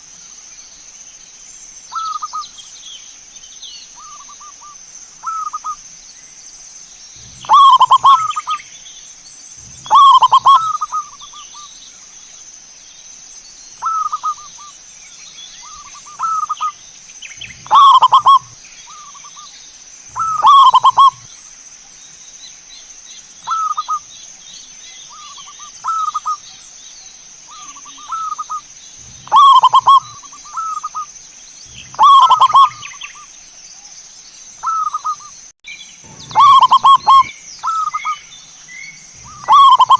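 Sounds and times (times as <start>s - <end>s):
faint high hiss: 0.0s - 39.9s
doves cooing: 7.2s - 8.6s, 9.6s - 11.6s, 13.8s - 14.6s, 15.6s - 16.7s, 17.4s - 19.4s, 20.1s - 21.3s, 27.5s - 31.1s, 31.7s - 33.1s, 36.0s - 38.2s, 39.2s - 39.9s.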